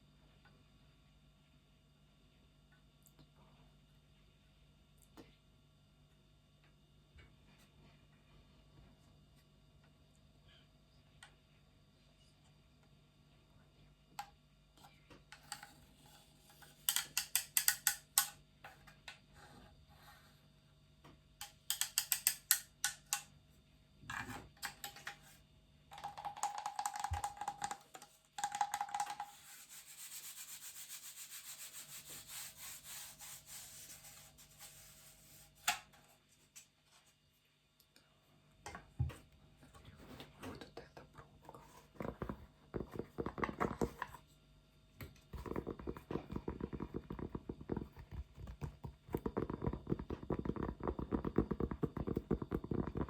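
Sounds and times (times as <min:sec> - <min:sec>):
scratchy rubbing: 0:29.3 - 0:35.6, 0:45.4 - 0:53.0.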